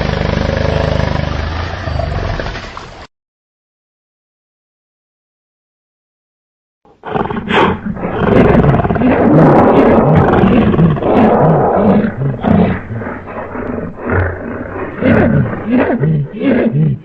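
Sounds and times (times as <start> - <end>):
deep rough animal roar: 7.0 - 17.0.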